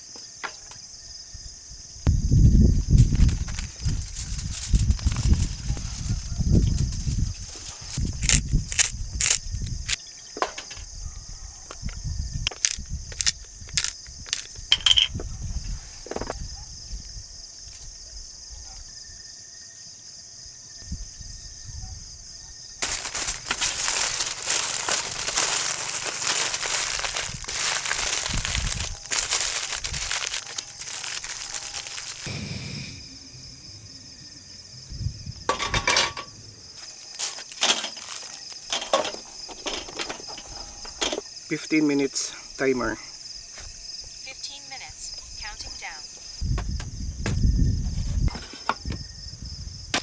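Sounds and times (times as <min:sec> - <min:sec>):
foil and paper crinkling: 0:02.8 - 0:09.9, 0:22.8 - 0:32.3, 0:36.8 - 0:40.6.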